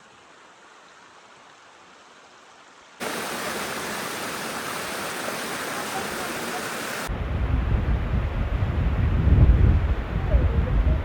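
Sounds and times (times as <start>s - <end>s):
rushing water: 0.0s - 7.1s.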